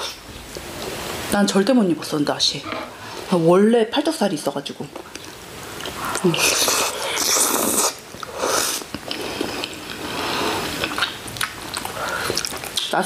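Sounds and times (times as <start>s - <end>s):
person biting and chewing food: 5.2s - 10.0s, 10.7s - 12.9s.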